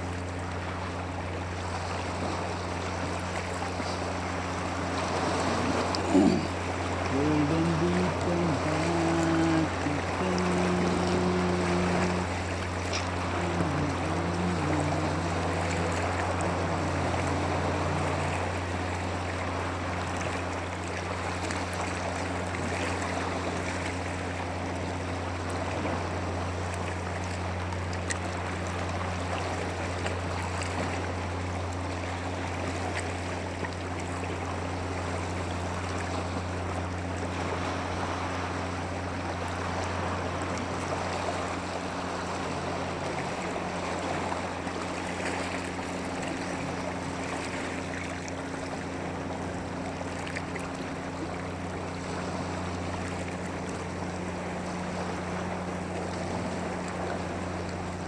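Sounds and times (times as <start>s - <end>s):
constant low hum: 0.0s - 58.0s
stream water flowing: 0.0s - 58.0s.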